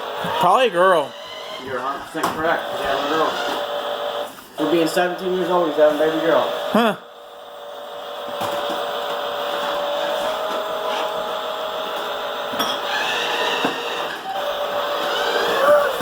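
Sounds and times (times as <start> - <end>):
toy electric motor whining: 0.0 - 16.0.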